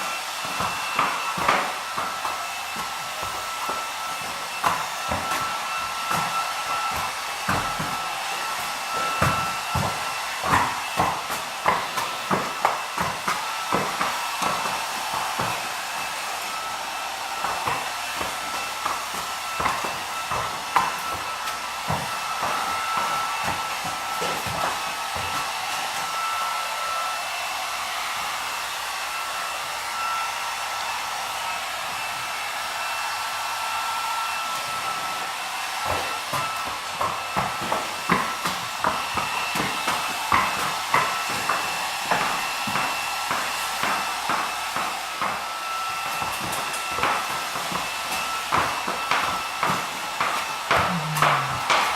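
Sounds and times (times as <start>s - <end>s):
hair dryer running: 0.0s - 51.9s
short knocks and thuds: 46.1s - 51.9s.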